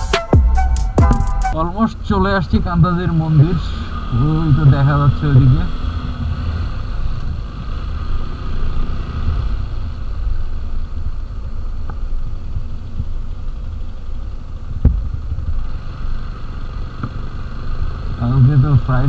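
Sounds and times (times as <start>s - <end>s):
sharp thump: 0.0s - 1.6s
motorcycle engine running: 0.0s - 19.0s.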